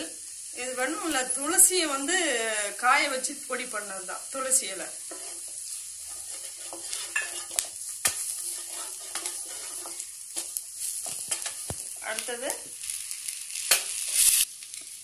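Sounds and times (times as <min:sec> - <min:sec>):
food sizzling in hot oil: 0:00.0 - 0:15.0
wooden spatula scraping a pan: 0:04.8 - 0:14.4.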